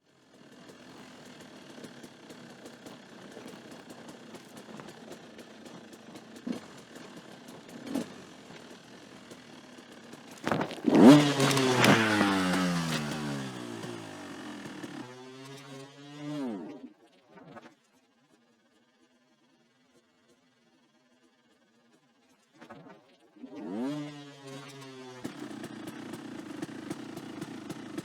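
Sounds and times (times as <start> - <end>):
dirt bike engine revving: 10.2 - 16.7, 23.5 - 28.0.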